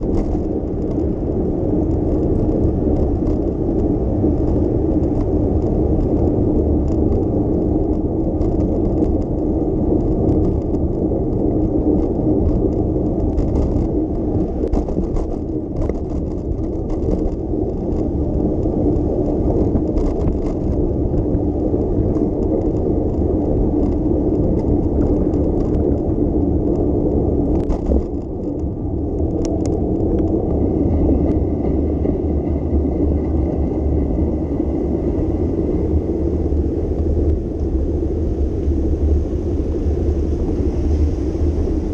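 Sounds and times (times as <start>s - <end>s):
wind on microphone: 0.0s - 41.9s.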